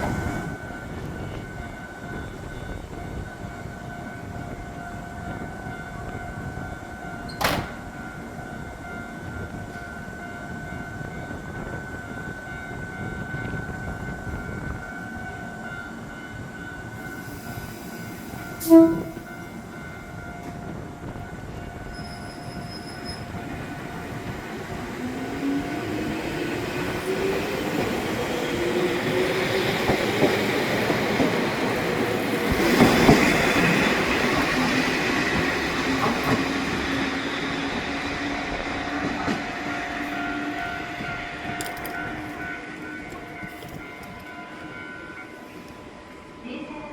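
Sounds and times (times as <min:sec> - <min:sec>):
train wheels on rails: 0:00.0 - 0:46.3.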